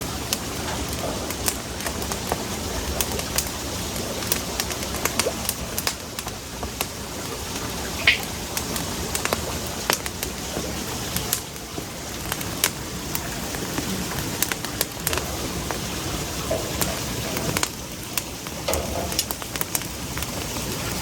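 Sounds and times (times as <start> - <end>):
campfire crackling: 0.0 - 21.0
sharp pops of fire: 8.0 - 11.5.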